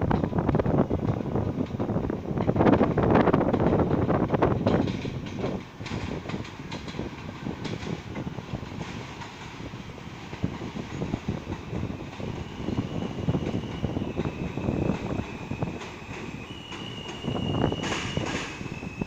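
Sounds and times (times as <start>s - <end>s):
train wheels rumbling and clattering: 0.0s - 19.0s
high steady squeal: 10.8s - 19.0s.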